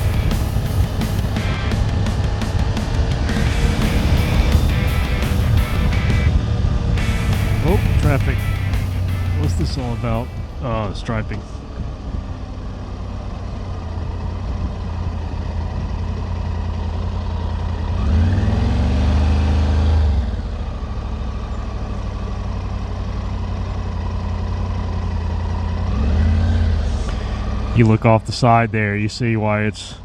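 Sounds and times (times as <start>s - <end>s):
motorcycle engine running: 0.0s - 29.3s.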